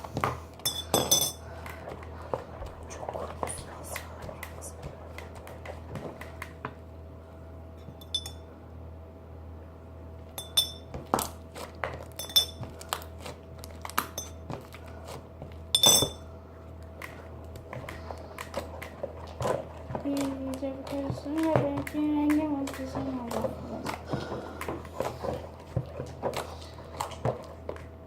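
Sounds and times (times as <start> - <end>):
spoon clinking against a bowl: 0.6 - 1.4, 8.0 - 8.4, 10.4 - 10.9, 12.2 - 12.6, 15.8 - 16.2.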